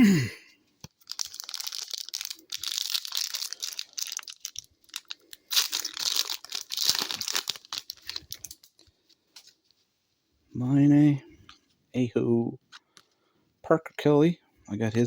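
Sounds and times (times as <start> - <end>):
foil wrapper tearing and crinkling: 0.8 - 8.8.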